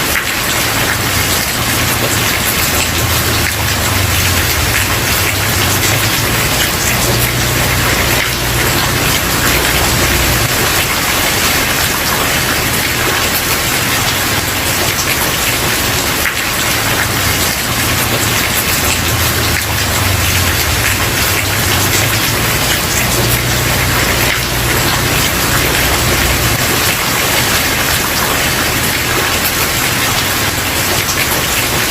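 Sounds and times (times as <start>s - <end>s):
heavy rain on wooden porch: 0.0s - 31.9s.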